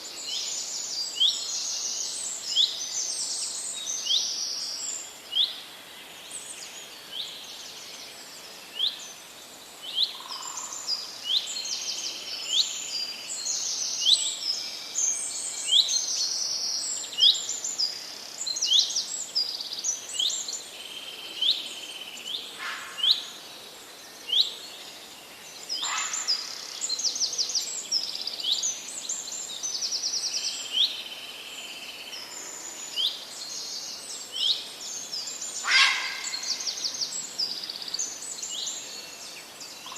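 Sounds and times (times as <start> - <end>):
faint background hiss: 0.0 - 39.9
birds trilling and chirping: 34.9 - 39.9.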